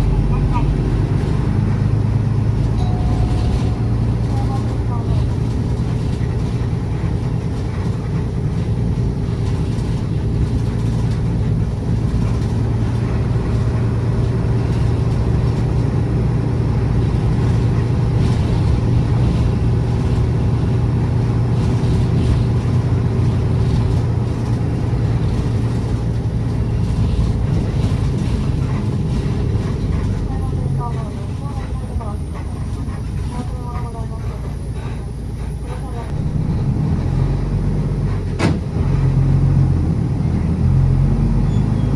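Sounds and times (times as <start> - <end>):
bus engine hum: 0.0 - 41.9
road and tyre noise: 0.0 - 41.9.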